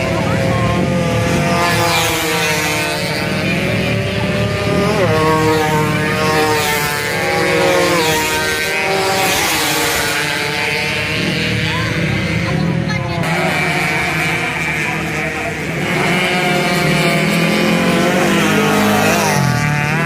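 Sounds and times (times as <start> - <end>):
racing motorcycles at high revs: 0.0 - 20.0.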